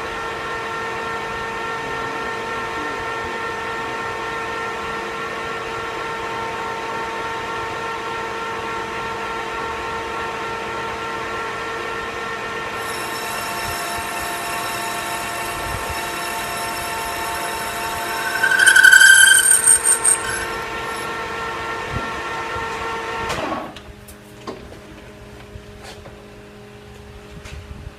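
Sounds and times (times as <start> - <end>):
metal lathe whining: 12.8 - 21.1
high-pitched squeal: 12.8 - 21.2.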